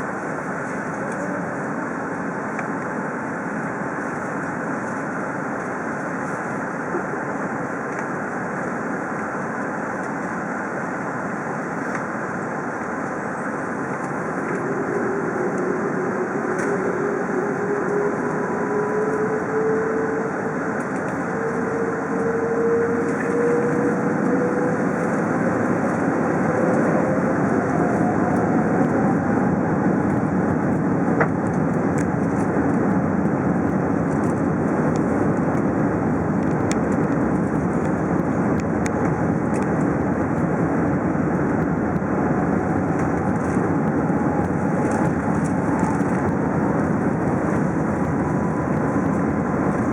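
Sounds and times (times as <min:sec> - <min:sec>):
jet engines at takeoff thrust: 0:00.0 - 0:49.9
wheels rumbling on runway: 0:00.0 - 0:49.9
engine whine rising in pitch: 0:10.5 - 0:49.9.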